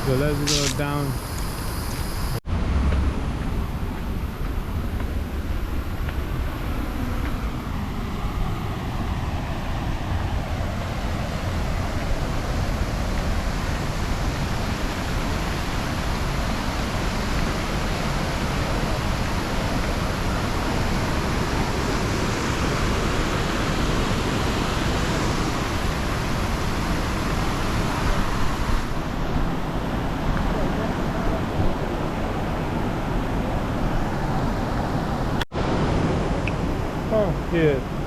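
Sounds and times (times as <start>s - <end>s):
waterfall rushing: 8.9s - 38.0s.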